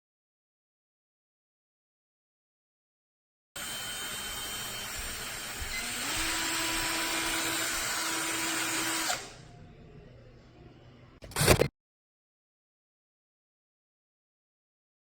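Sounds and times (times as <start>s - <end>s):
cordless drill motor running: 3.6s - 9.4s.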